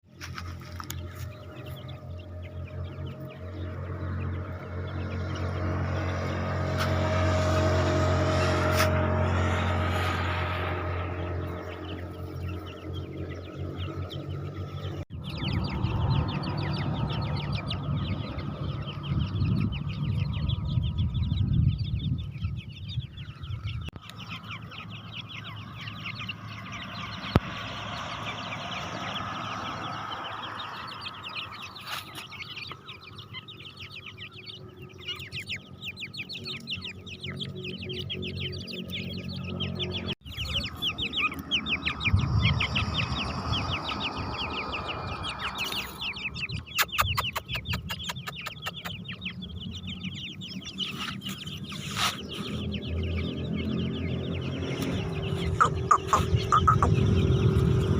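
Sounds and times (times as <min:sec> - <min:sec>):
partridges chirping: 0:00.3 - 0:07.0, 0:10.0 - 0:57.9
low rumbling noise: 0:00.8 - 0:31.8, 0:32.4 - 0:57.9.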